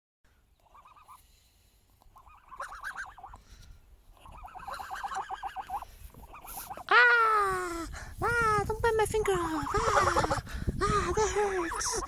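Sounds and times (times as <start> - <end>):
gosling peeping: 0.6 - 1.2, 2.0 - 3.4, 4.1 - 6.9, 8.4 - 12.0.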